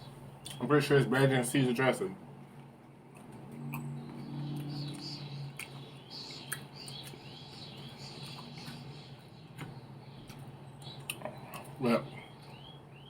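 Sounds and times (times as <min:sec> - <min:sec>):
steady low hum: 0:00.0 - 0:13.0
chewing clicks: 0:03.1 - 0:08.9, 0:09.6 - 0:11.8.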